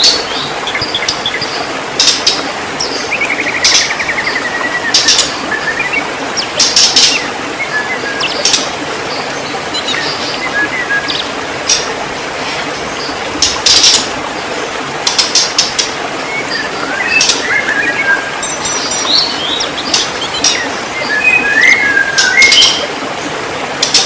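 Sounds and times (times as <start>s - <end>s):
bird whistling song: 7.0s - 8.6s, 9.7s - 11.3s, 16.3s - 22.9s.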